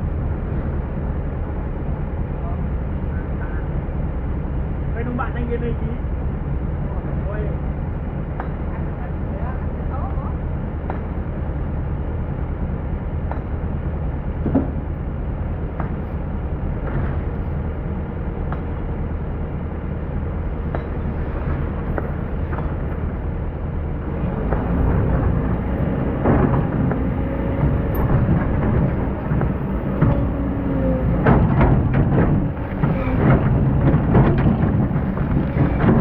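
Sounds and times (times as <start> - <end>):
excavator diesel engine rumbling: 0.0 - 36.0
sharp knocks: 14.4 - 14.8, 26.0 - 36.0.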